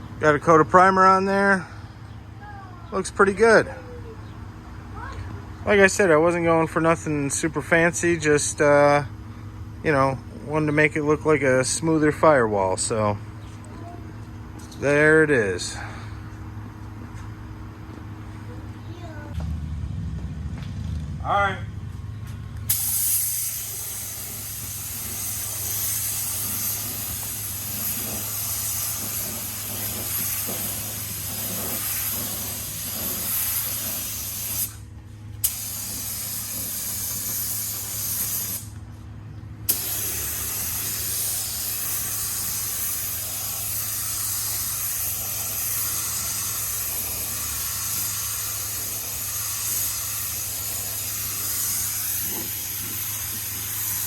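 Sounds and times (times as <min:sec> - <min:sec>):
steady low hum: 0:00.0 - 0:54.0
spray gun hissing: 0:22.7 - 0:34.8, 0:35.4 - 0:38.7, 0:39.7 - 0:54.0.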